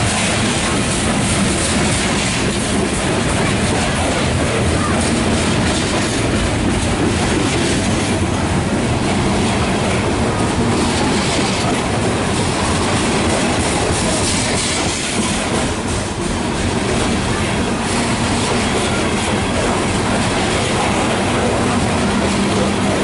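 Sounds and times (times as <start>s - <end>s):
freight train rolling past: 0.0s - 23.0s
wheels clacking over rail joints: 0.0s - 23.0s.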